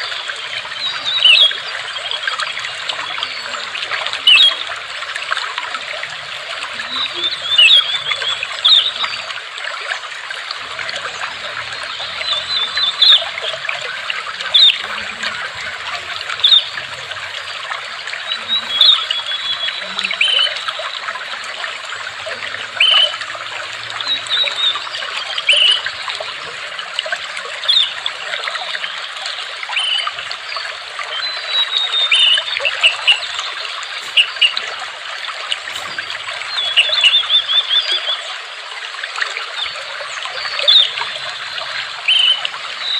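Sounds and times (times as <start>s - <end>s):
water trickling and splashing: 0.0s - 42.9s
bird chirps and whistles: 42.1s - 42.4s.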